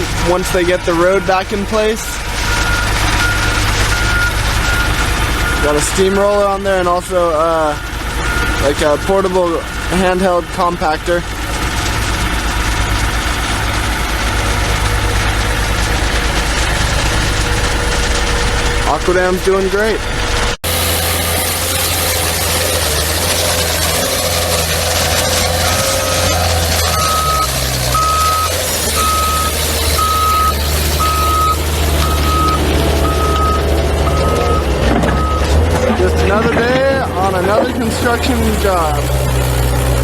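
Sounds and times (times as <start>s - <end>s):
compactor engine pulsing: 0.0s - 40.0s
backup alarm beeping: 0.9s - 9.7s, 26.9s - 37.3s.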